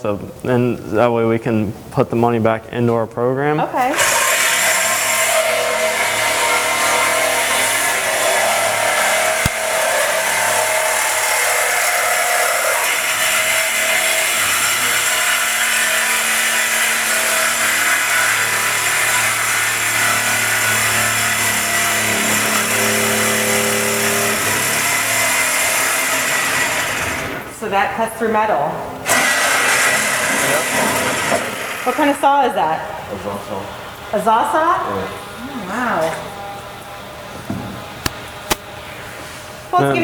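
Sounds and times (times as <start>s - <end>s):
power saw cutting metal: 3.9s - 27.3s.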